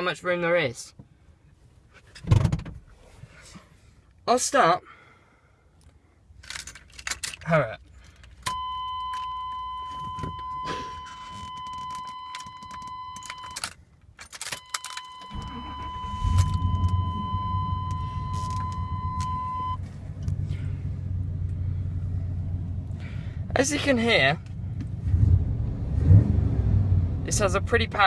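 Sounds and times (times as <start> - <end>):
keys jangling: 6.4 - 8.4
warning tone: 8.5 - 13.6, 14.6 - 19.9
engine cranking and idling: 14.8 - 23.6.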